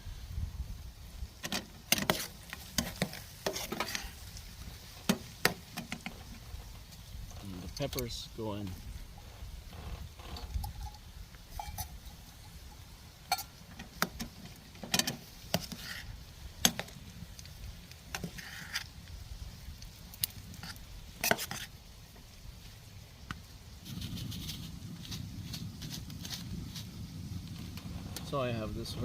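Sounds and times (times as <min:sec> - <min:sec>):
light sizzling: 0:00.0 - 0:29.0
utensil scraping frying pan: 0:01.4 - 0:04.4, 0:09.1 - 0:16.9, 0:18.1 - 0:18.9, 0:20.5 - 0:21.7.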